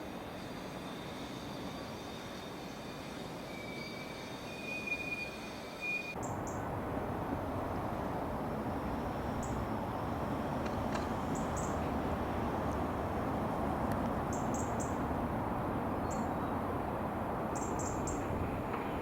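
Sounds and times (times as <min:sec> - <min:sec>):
electric train whine: 0:00.0 - 0:19.0
train rumbling: 0:00.0 - 0:19.0
bird chirps: 0:14.3 - 0:15.0, 0:16.0 - 0:16.5, 0:17.6 - 0:18.3.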